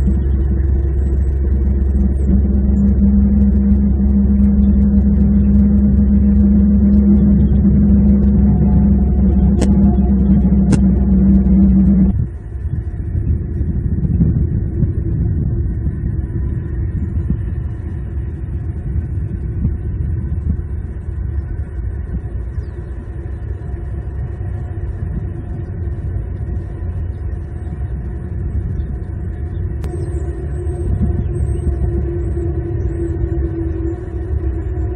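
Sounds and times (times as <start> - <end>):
thin high tone: 0.0 - 12.1
faint constant hum: 0.0 - 34.9
steady low rumble: 0.0 - 34.9.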